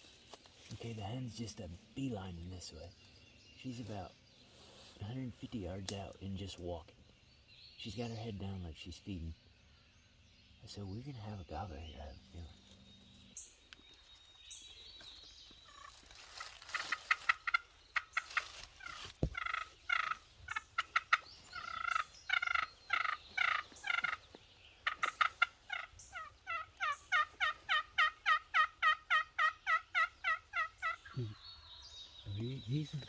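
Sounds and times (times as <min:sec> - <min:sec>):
turkey yelping and clucking: 0:15.7 - 0:31.4.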